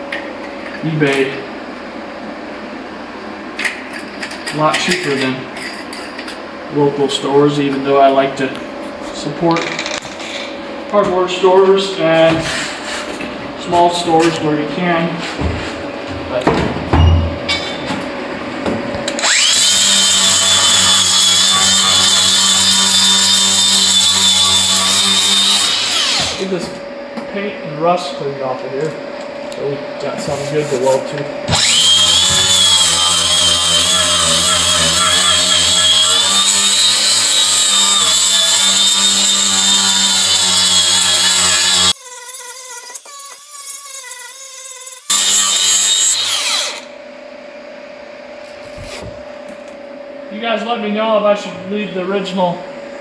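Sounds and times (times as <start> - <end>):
angle grinder whining: 18.9 - 26.7, 30.8 - 46.9.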